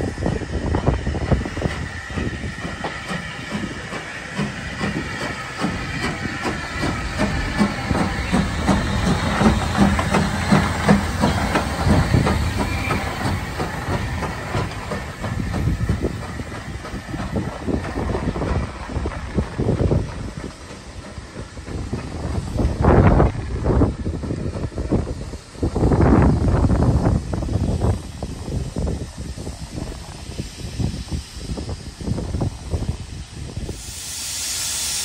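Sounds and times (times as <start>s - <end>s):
train wheels clattering: 0.1s - 32.9s
steady hiss: 24.0s - 35.0s.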